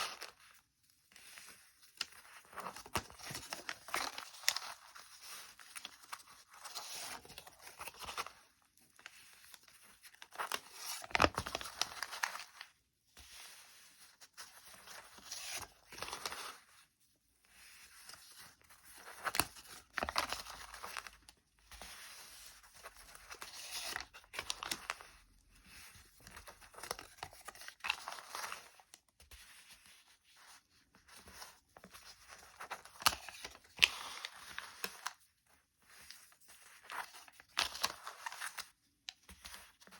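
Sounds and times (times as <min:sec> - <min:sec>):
paper crinkling and rustling: 0:00.0 - 0:16.9, 0:17.5 - 0:39.9.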